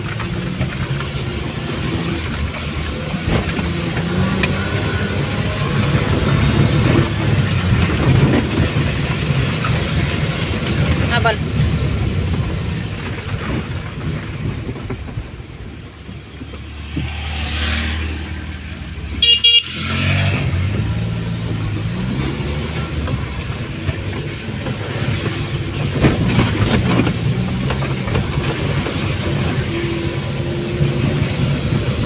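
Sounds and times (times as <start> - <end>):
engine revving: 0.0 - 9.6, 16.7 - 32.0
vehicle engines running: 0.0 - 32.0.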